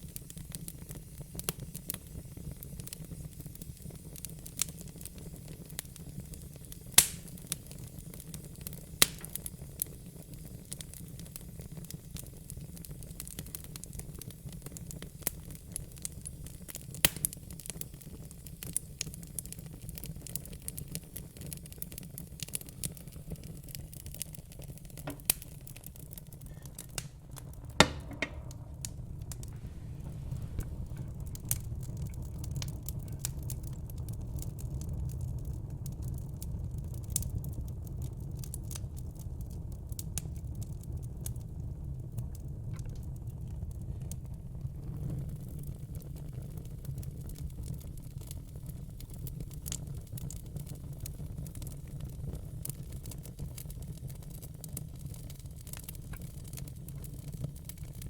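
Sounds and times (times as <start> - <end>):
wood fire crackling and popping: 0.0 - 58.0
low steady rumble: 24.7 - 35.4.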